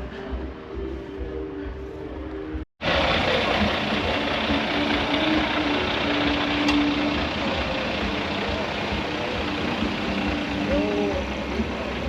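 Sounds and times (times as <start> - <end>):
diesel truck engine idling: 2.8 - 12.0.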